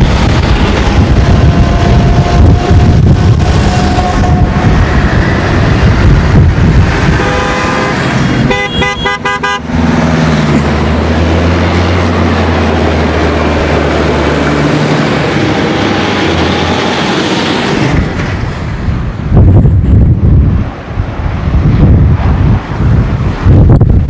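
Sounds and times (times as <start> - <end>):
vehicle horn tooting: 3.6 - 4.7, 7.0 - 9.7.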